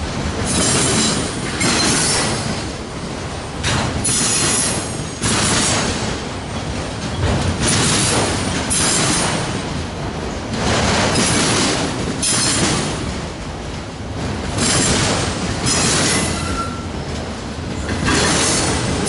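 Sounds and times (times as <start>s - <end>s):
freight train wheels on rail: 0.0s - 19.0s
train wheel squeal: 0.5s - 2.6s, 15.6s - 17.0s.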